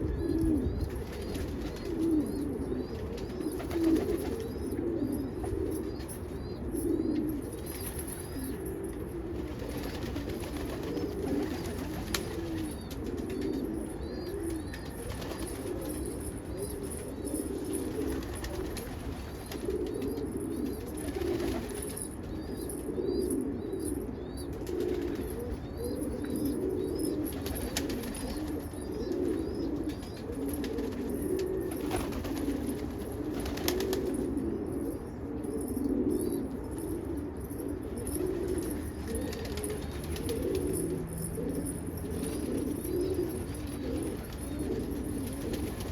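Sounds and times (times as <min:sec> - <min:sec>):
pigeons cooing: 0:00.0 - 0:45.9
small birds chirping: 0:09.6 - 0:32.4.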